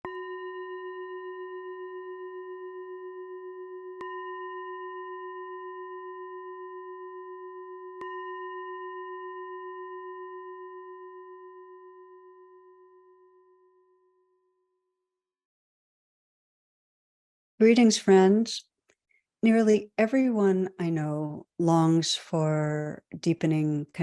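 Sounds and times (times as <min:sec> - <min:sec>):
singing bowl ringing: 0:00.0 - 0:14.9.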